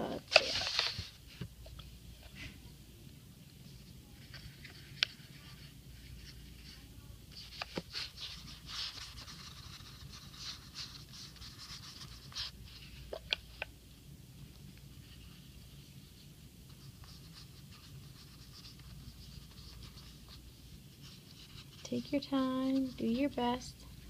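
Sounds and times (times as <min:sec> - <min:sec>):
paintbrush brushing on paper: 0:04.1 - 0:13.1, 0:14.9 - 0:23.5.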